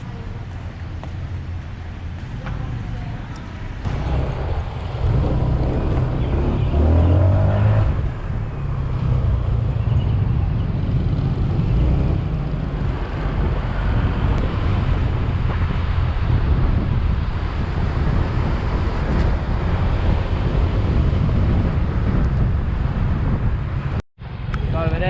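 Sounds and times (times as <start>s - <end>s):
wind rumbling on microphone: 0.0s - 25.0s
scooter engine running: 3.9s - 6.7s.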